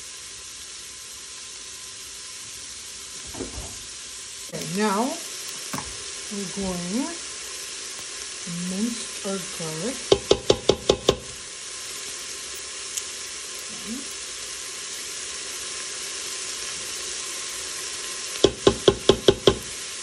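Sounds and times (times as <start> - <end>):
vegetables sizzling in oil: 0.0 - 20.0
sharp knocks against pot: 10.1 - 11.4.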